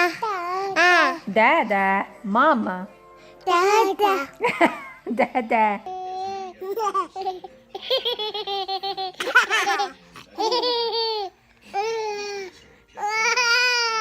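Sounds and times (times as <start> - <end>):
baby laughing: 5.9 - 14.0.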